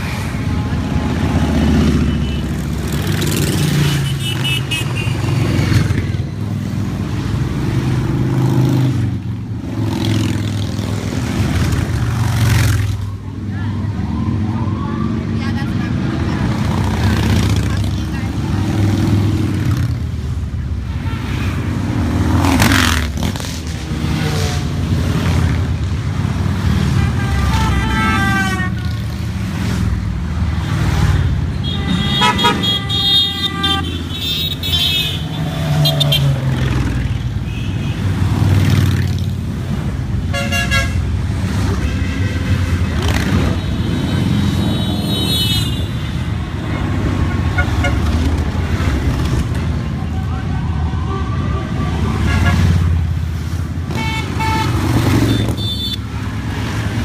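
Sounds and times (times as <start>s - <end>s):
horns honking: 0.0s - 6.2s, 26.6s - 29.3s, 30.6s - 38.5s, 40.2s - 48.4s, 49.9s - 53.1s, 53.8s - 57.0s
motorcycles riding past: 0.0s - 28.2s, 34.6s - 40.3s, 42.6s - 51.0s.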